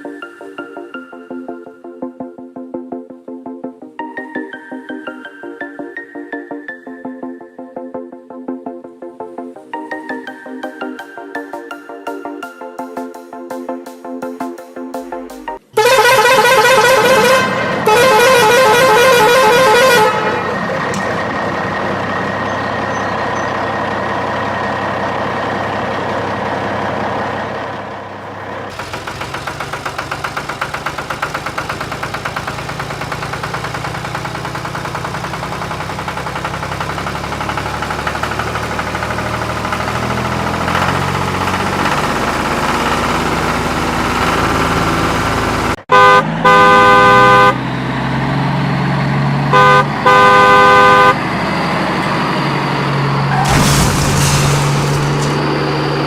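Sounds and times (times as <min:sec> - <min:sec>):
vehicle horn wavering: 0:15.7 - 0:21.0, 0:45.9 - 0:47.7, 0:49.5 - 0:51.3
vehicle engine running: 0:15.8 - 0:56.0.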